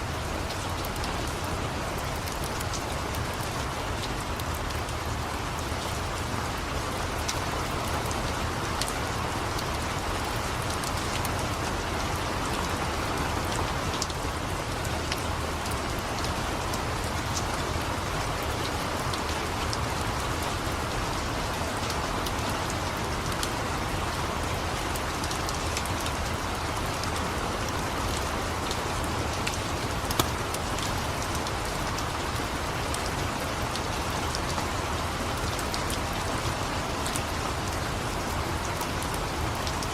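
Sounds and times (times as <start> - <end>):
steady rain: 0.0 - 39.9
wood fire crackling: 29.4 - 30.8.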